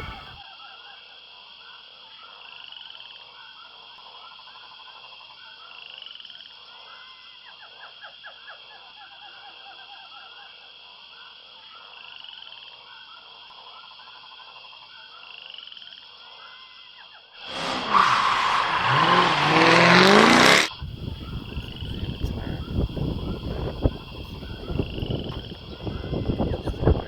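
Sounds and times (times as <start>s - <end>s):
chorus of croaking animal calls: 0.0s - 0.4s, 17.5s - 27.0s
higher rising call: 17.5s - 20.7s.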